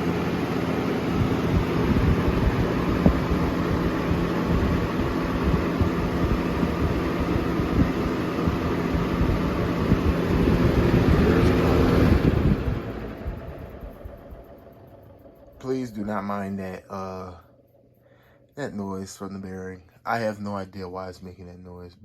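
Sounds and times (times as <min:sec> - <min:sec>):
box fan air rushing: 0:00.0 - 0:16.2
low motor hum: 0:00.0 - 0:19.2.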